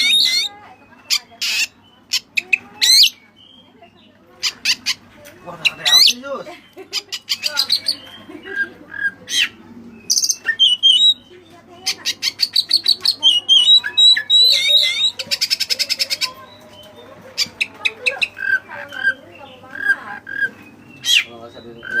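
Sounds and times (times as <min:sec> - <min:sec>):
songbird singing varied song: 0:09.4 - 0:22.0.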